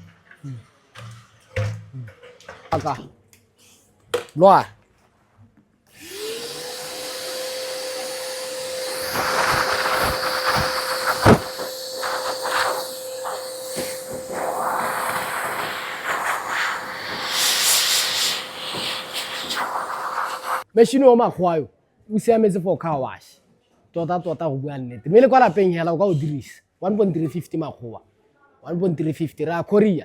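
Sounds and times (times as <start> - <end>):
vacuum cleaner motor whine: 5.9 - 20.6
rush of air: 6.1 - 20.6.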